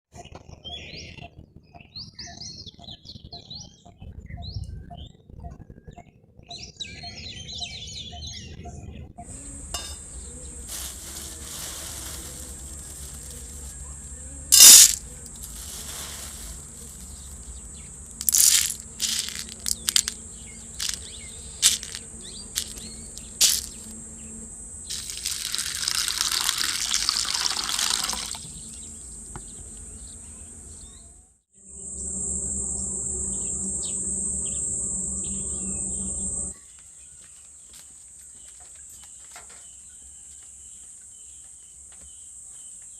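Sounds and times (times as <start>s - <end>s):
high insect drone: 9.2s - 30.5s, 31.6s - 36.6s
birds chirping: 18.8s - 25.1s.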